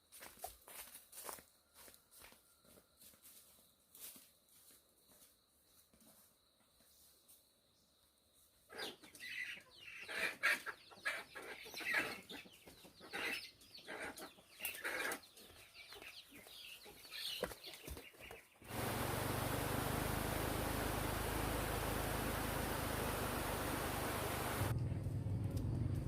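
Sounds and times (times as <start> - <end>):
chickens clucking: 8.7 - 24.7
steady hiss with low hum: 18.7 - 24.7.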